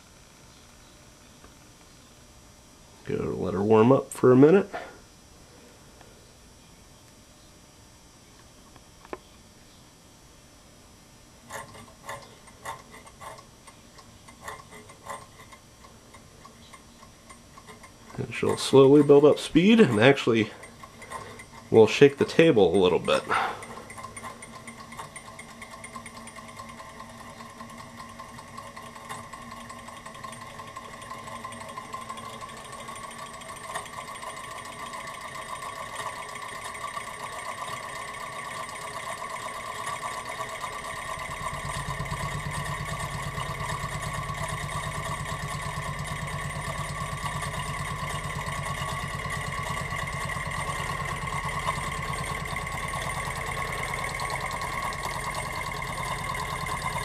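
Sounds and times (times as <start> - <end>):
low hum of shaking table: 11.5 - 57.0
small engine mechanical patter: 11.5 - 57.0.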